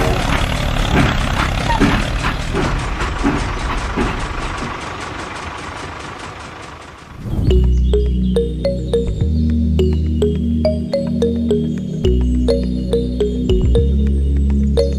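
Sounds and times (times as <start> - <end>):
tractor engine knocking: 0.0 - 7.7.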